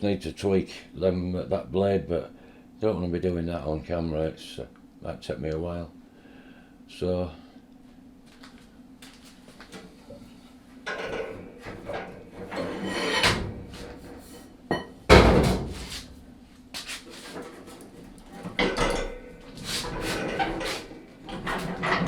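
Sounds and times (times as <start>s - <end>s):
metal parts and tools clattering: 18.4s - 22.0s.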